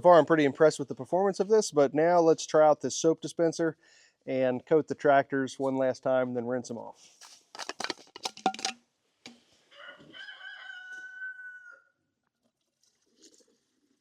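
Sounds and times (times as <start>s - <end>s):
rooster crowing: 9.7s - 12.0s.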